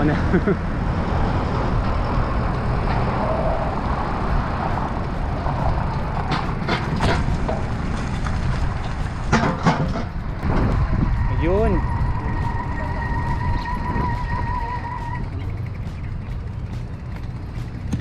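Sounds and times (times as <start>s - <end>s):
wind noise on microphone: 0.0s - 18.0s
sharp clicks and rattles: 4.3s - 18.0s.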